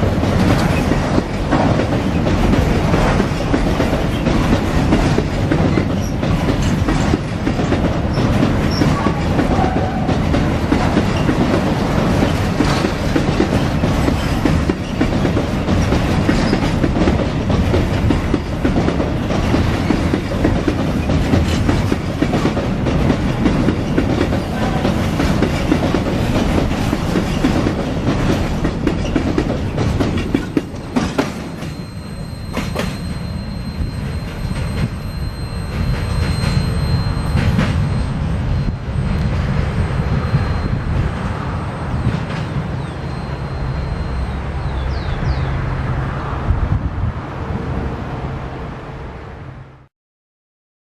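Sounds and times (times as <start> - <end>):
wheels clacking over rail joints: 0.0 - 38.0
freight train rolling past: 0.0 - 49.9
high wheel squeal: 5.8 - 6.7, 30.2 - 45.5.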